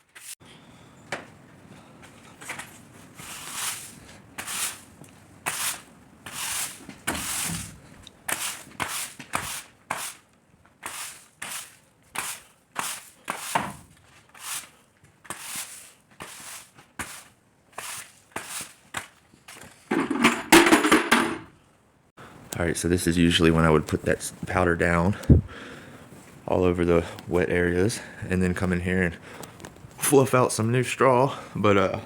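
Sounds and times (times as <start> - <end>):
tool scraping through bedding: 5.5 - 10.2.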